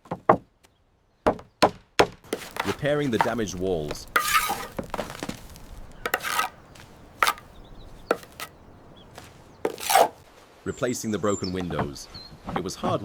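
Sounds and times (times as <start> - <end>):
hand tool scraping wall: 2.4 - 10.2.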